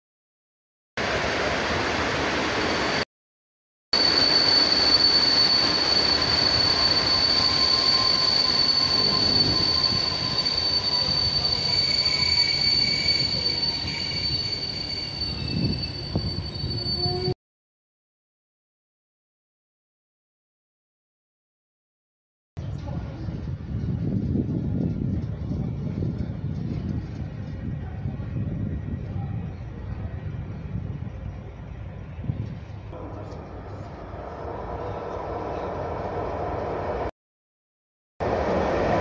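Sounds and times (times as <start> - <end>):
high-pitched wheel squeal: 4.0 - 17.4
rumble of train wheels: 4.0 - 17.4, 22.6 - 37.1, 38.2 - 39.0.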